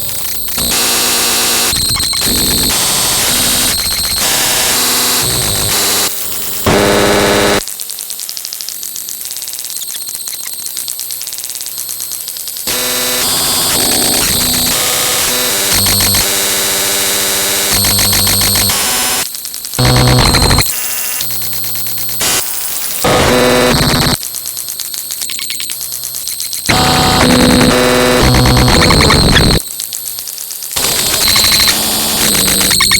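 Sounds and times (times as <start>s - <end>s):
steady electronic tones: 0.0s - 7.6s, 12.7s - 19.2s, 19.8s - 29.8s
harsh electronic static and buzzing: 0.0s - 32.9s.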